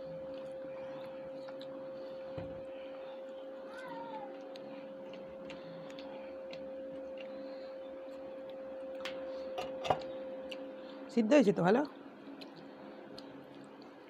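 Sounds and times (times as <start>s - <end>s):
electrical hum: 0.0s - 14.0s
cutlery clicking on plate: 9.6s - 10.1s.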